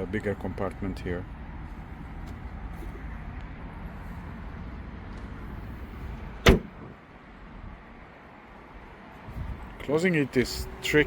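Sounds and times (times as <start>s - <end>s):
car trunk lid thud: 6.4s - 7.0s.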